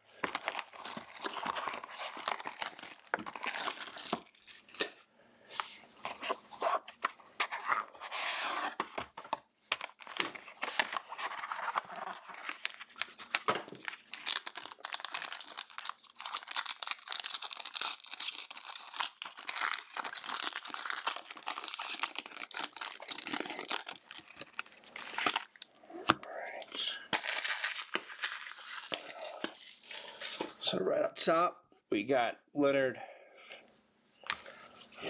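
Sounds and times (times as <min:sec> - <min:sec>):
plastic wrapping crinkling and tearing: 0:00.0 - 0:05.0, 0:09.8 - 0:25.8, 0:27.1 - 0:30.6.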